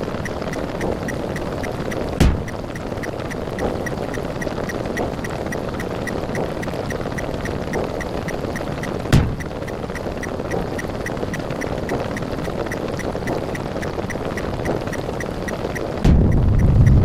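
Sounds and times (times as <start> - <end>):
low rumble: 16.0 - 17.0
sharp hit: 16.0 - 17.0.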